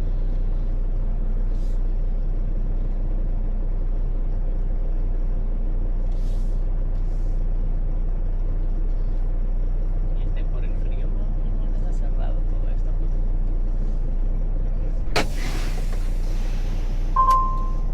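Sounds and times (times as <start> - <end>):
truck diesel engine rumble: 0.0 - 17.9
air brake hisses: 6.1 - 6.7, 15.1 - 17.9.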